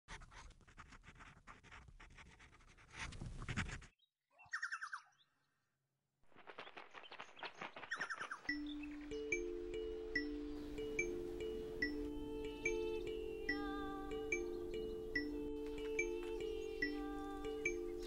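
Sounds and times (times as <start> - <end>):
birds chirping: 7.7 - 18.0.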